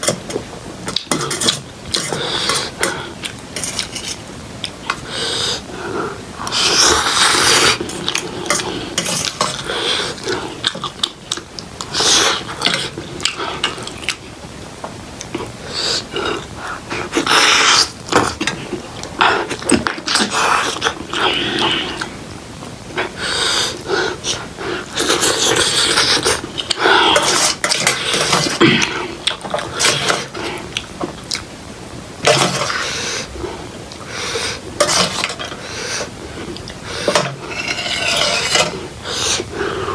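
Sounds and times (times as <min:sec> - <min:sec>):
cutlery scraping a dish: 0:00.0 - 0:03.0, 0:03.6 - 0:04.2, 0:06.9 - 0:10.9, 0:27.2 - 0:28.6, 0:29.4 - 0:30.4, 0:32.2 - 0:32.8, 0:34.8 - 0:35.6, 0:37.0 - 0:39.5
slurping noodles: 0:04.9 - 0:11.1, 0:15.4 - 0:22.2, 0:23.0 - 0:30.9, 0:32.3 - 0:39.9.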